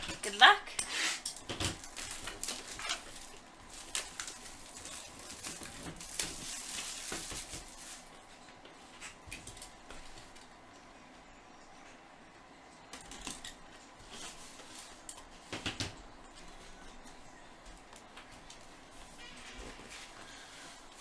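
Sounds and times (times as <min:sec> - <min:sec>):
card box packaging crinkling: 0:01.8 - 0:08.2.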